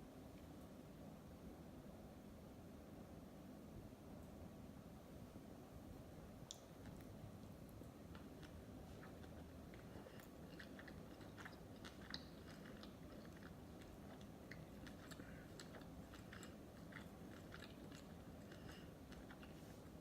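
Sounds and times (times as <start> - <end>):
faint background hum: 0.0 - 20.0
person chewing food: 6.6 - 20.0.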